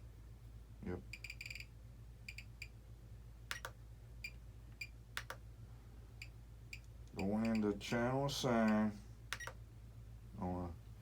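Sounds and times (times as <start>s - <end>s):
button clicks: 3.5s - 3.8s.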